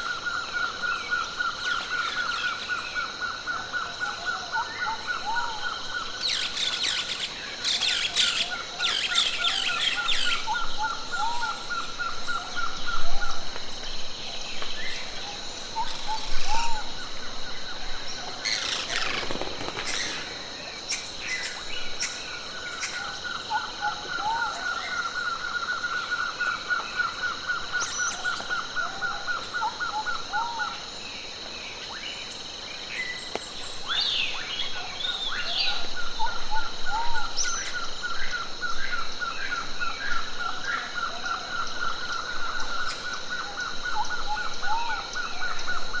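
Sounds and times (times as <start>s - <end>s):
birds chirping and calling: 4.6s - 13.4s, 14.3s - 30.8s.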